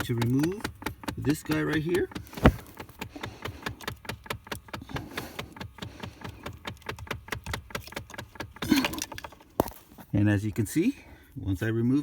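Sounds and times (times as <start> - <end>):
rapid clicking inside dashboard: 0.0 - 8.7.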